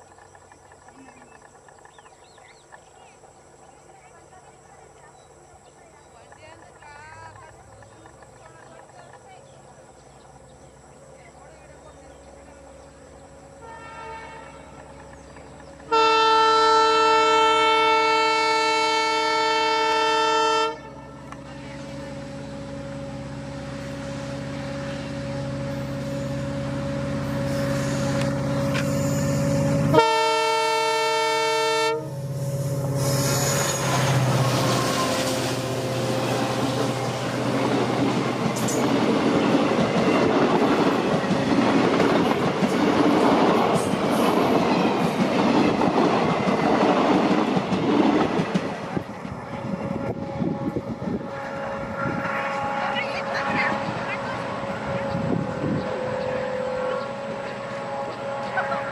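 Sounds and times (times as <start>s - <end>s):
train wheels clattering on track: 0.0s - 10.5s, 14.4s - 16.2s, 32.3s - 50.1s
train rumble: 0.0s - 58.9s
locomotive horn blasts: 13.5s - 15.0s, 15.8s - 37.4s, 49.6s - 58.9s.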